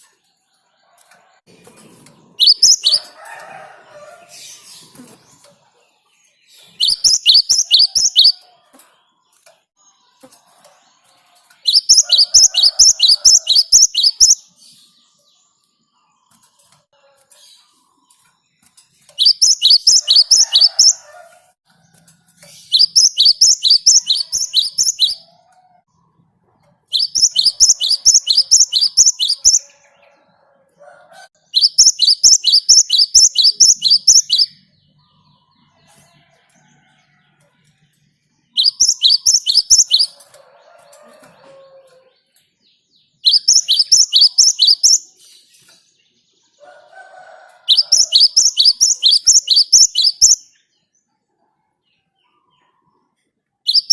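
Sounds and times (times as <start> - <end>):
tit singing high downward notes: 2.4 - 3.2, 11.7 - 14.4, 19.2 - 21.0, 22.8 - 25.2, 27.0 - 29.7, 31.6 - 34.5, 38.6 - 40.2.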